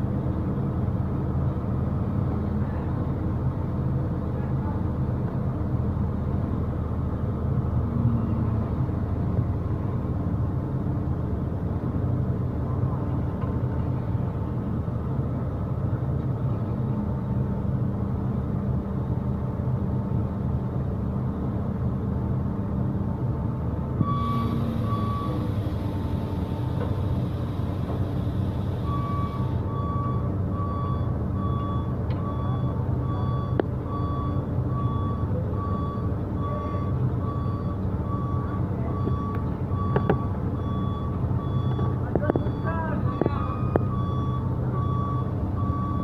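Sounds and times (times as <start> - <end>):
diesel engines running: 0.0 - 46.0
machine warning beeper: 28.9 - 46.0.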